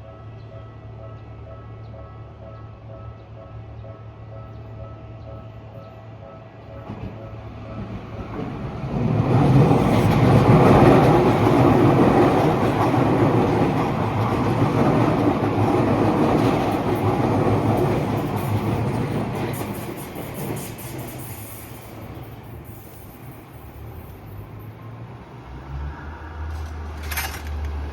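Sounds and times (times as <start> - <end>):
train wheels clickety-clack on rail: 6.7 - 25.0, 26.3 - 27.9.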